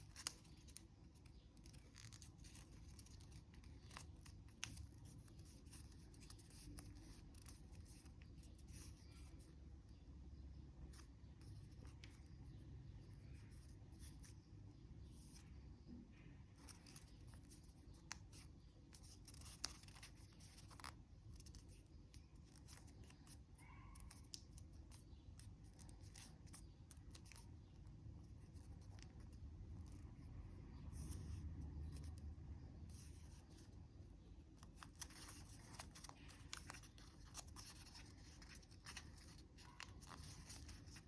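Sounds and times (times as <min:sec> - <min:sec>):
paper being folded and creased: 0:00.0 - 0:09.4, 0:16.6 - 0:23.4, 0:34.6 - 0:41.0.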